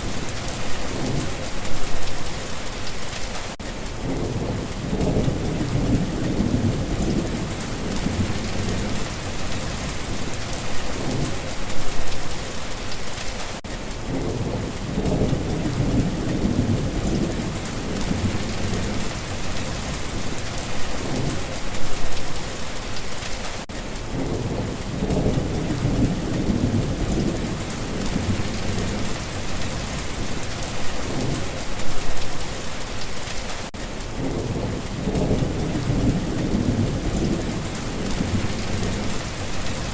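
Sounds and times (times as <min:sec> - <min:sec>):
steady rain: 0:00.0 - 0:39.9
thunder rumbling: 0:04.0 - 0:12.5, 0:14.0 - 0:22.6, 0:24.0 - 0:32.4, 0:34.1 - 0:39.9.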